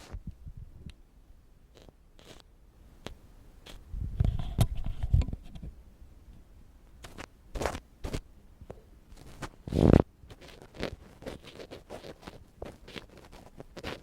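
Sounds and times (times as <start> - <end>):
ear pick scraping microphone: 0.0 - 0.4, 1.7 - 2.4, 3.6 - 5.7, 9.2 - 14.0.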